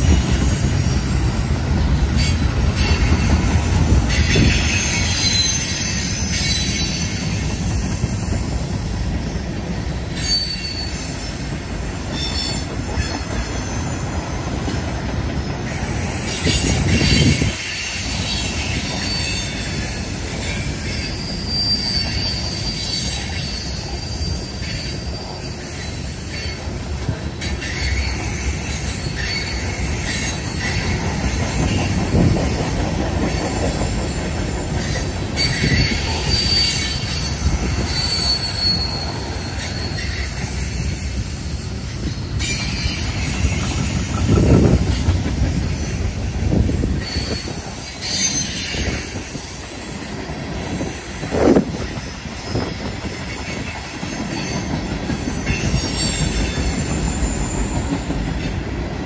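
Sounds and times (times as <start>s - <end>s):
steel wheels rumbling on rail: 0.0s - 59.0s
high-pitched wheel squeal: 4.1s - 7.4s, 10.1s - 15.0s, 16.3s - 26.6s, 33.3s - 44.7s, 45.6s - 49.9s, 55.4s - 58.5s.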